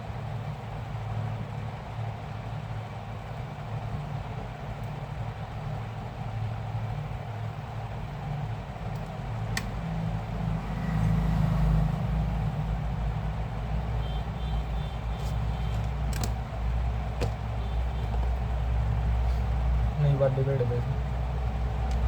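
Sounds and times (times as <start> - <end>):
low engine rumble: 5.4 - 22.0.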